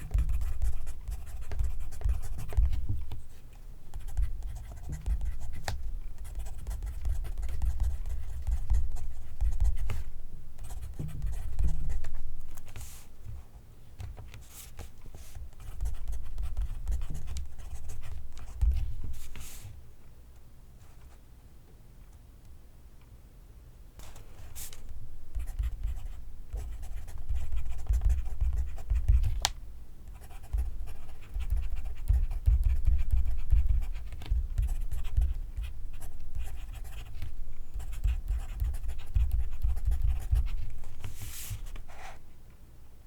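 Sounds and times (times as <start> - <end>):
pencil writing on paper: 0.0 - 3.2, 4.0 - 10.0, 25.3 - 29.2, 30.2 - 42.2.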